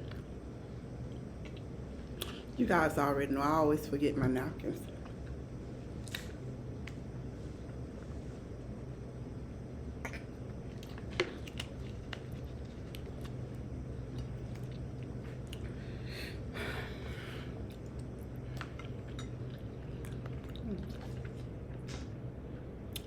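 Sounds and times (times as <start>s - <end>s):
person chewing: 6.0s - 7.0s, 10.0s - 15.8s, 17.6s - 22.1s.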